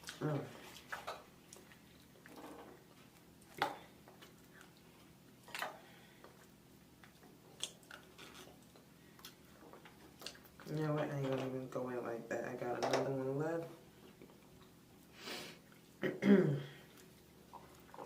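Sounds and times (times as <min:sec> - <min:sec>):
person chewing: 0:00.0 - 0:10.6.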